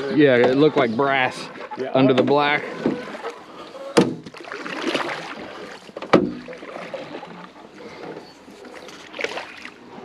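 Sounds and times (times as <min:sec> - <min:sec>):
handling noise in boat: 0:00.0 - 0:10.0.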